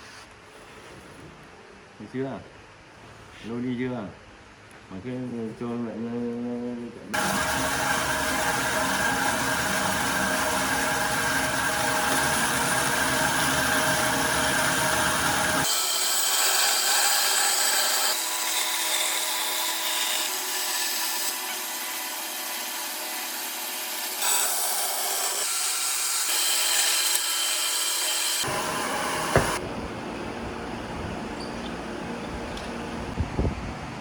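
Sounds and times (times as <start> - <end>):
power tool rasping wood: 7.2 - 29.6.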